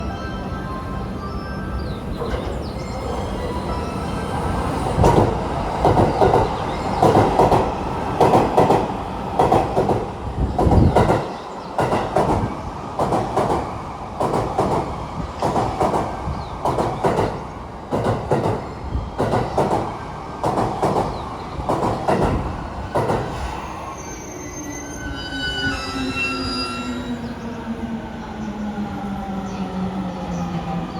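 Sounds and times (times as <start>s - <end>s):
train rumble: 0.0s - 23.9s
train wheels clacking: 4.9s - 23.5s.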